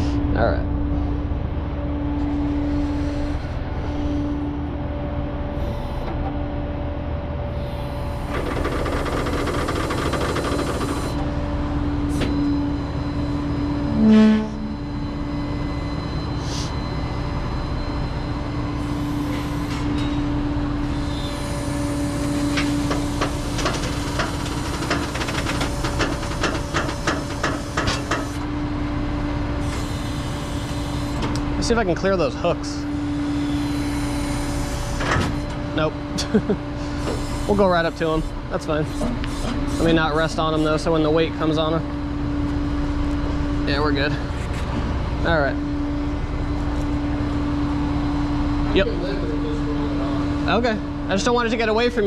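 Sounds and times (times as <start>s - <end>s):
truck horn beep: 13.9s - 15.0s.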